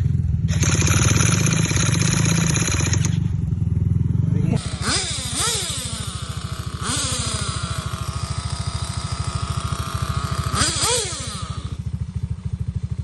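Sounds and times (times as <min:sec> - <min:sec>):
engine idling: 0:00.0 - 0:13.0
rc car engines revving: 0:00.5 - 0:03.3, 0:04.3 - 0:11.9.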